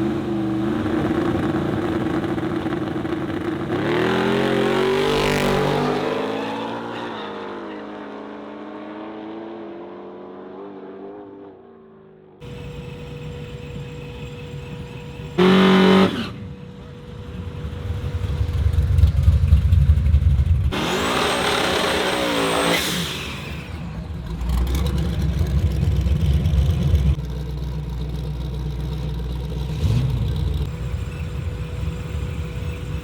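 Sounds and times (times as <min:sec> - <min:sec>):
car engines running: 0:00.0 - 0:06.2, 0:12.4 - 0:33.0
car horn blast: 0:15.3 - 0:16.6.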